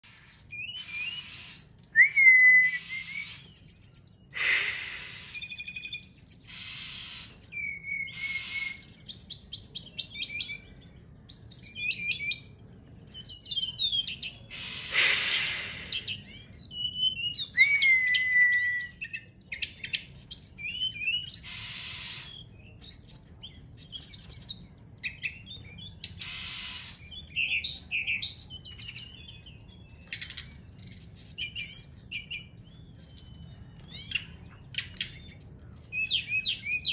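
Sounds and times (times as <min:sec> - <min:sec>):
bird song chirps and trills: 0:00.0 - 0:36.9
harsh raspy bird bursts: 0:00.7 - 0:01.7, 0:04.3 - 0:05.5, 0:06.4 - 0:07.4, 0:08.1 - 0:08.8, 0:14.5 - 0:16.3, 0:21.4 - 0:22.4, 0:26.2 - 0:27.1
long slurred whistle: 0:02.0 - 0:03.3.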